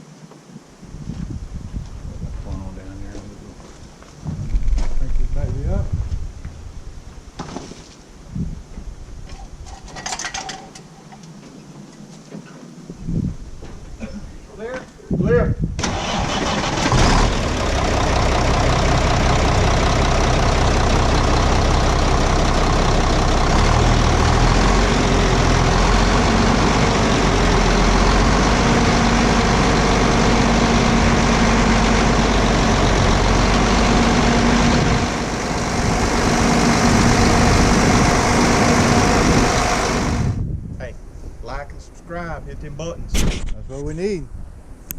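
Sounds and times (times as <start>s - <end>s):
diesel engine idling: 15.8s - 40.4s.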